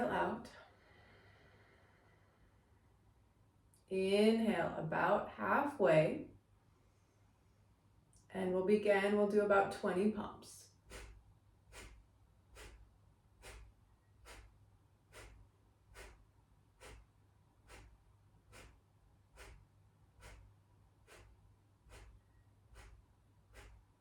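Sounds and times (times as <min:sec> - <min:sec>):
sharp exhales through nose: 0:10.8 - 0:23.9.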